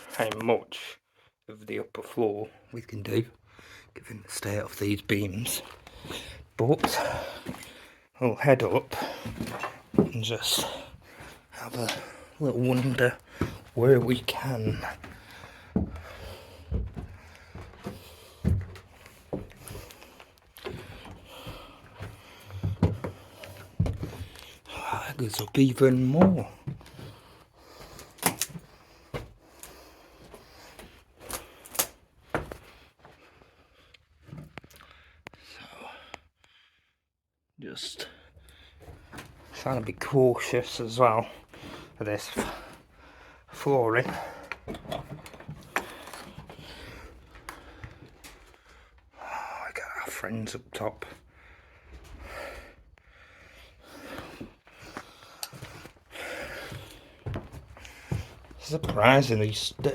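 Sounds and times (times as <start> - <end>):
footsteps on wooden stairs: 5.4 - 7.8, 8.7 - 33.4, 38.6 - 48.8, 53.8 - 59.9
person breathing: 5.6 - 8.2, 10.6 - 12.4, 13.2 - 13.8, 14.7 - 25.3, 26.5 - 37.0, 41.3 - 49.8, 51.1 - 58.5.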